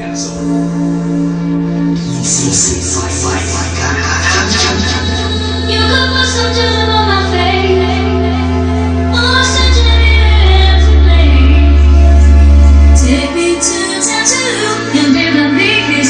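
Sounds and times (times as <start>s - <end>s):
heavy bass notes: 0.0s - 16.0s
person singing: 2.0s - 8.4s.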